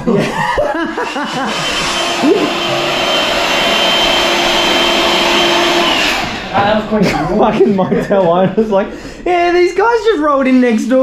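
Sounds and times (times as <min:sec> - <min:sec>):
electric air pump motor whine: 0:00.8 - 0:07.1.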